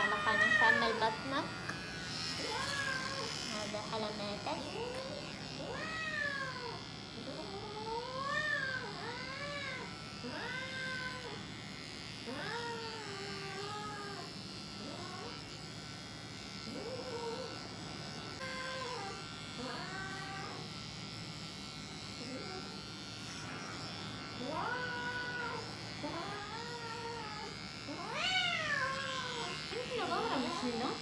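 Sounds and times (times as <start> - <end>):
cat meowing: 0.0 - 1.0, 26.4 - 29.6
electric hair clippers buzzing: 0.0 - 31.0.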